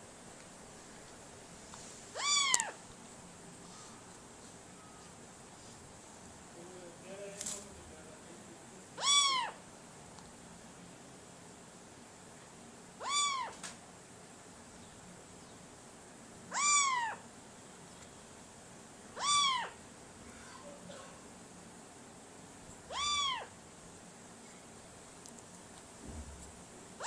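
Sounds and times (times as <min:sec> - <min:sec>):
meow-like calls: 0:02.1 - 0:02.8, 0:09.0 - 0:09.6, 0:13.0 - 0:13.7, 0:16.5 - 0:17.2, 0:19.2 - 0:19.8, 0:22.9 - 0:23.6.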